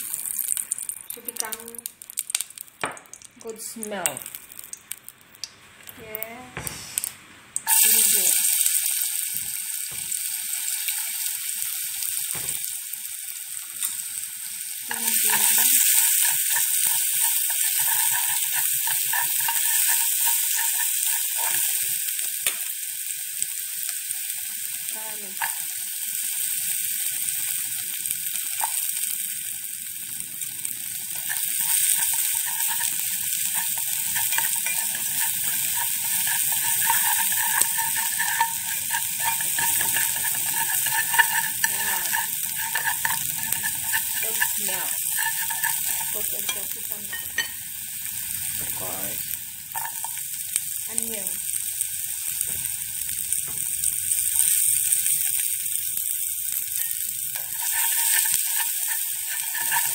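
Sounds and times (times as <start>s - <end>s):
ginger sizzling in hot oil: 0.0s - 59.9s
stirring in a pan: 14.9s - 22.6s, 30.1s - 51.2s, 56.5s - 59.9s.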